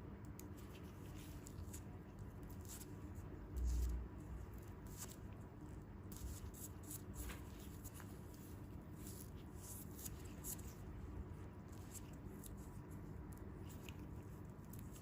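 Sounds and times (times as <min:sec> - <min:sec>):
low steady hum: 0:00.0 - 0:15.0
hands rustling on skin: 0:06.2 - 0:10.9.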